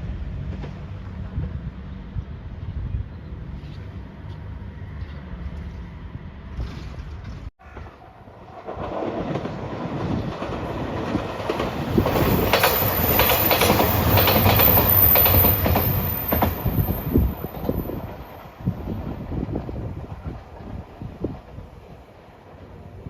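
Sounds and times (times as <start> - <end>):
train wheels clattering: 8.6 - 19.8.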